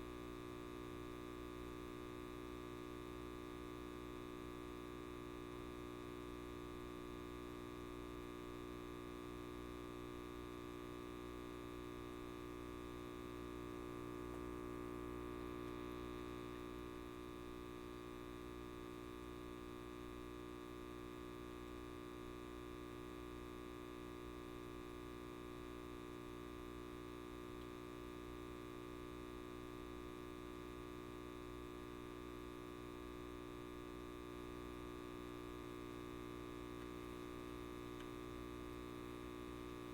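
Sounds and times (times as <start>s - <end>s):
light bulb electrical hum: 0.0s - 39.9s.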